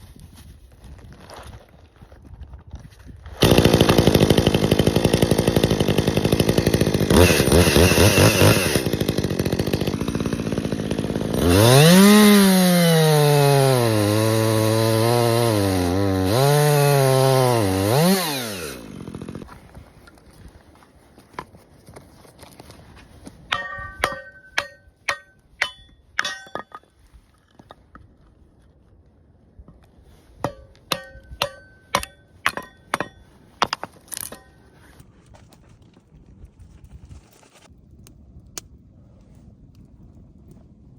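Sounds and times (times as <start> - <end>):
chainsaw cutting wood: 3.3 - 19.6, 30.4 - 35.0.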